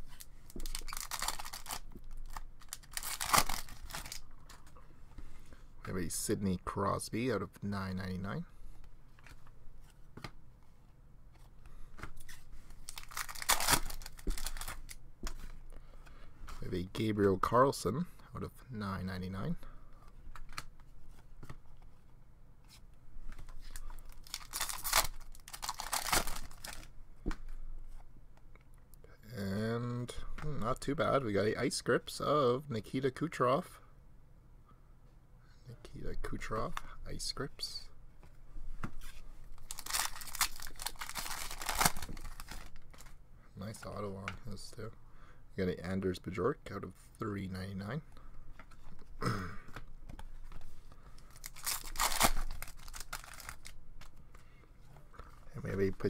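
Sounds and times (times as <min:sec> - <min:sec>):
wrapper crinkling and tearing: 0:00.1 - 0:04.6, 0:12.8 - 0:15.0, 0:24.0 - 0:26.9, 0:39.6 - 0:43.1, 0:51.2 - 0:54.1.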